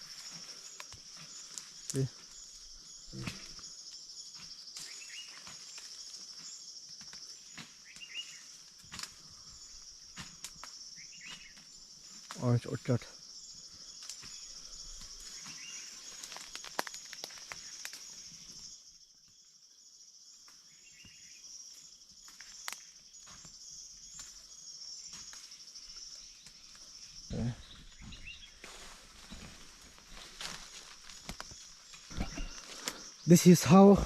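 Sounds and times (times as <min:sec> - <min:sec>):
insect chorus buzzing: 0:00.0 - 0:34.0.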